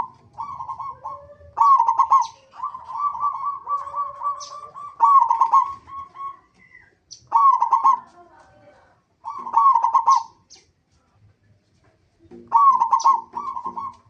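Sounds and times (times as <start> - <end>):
dove cooing: 0.0 - 10.4, 12.3 - 14.0.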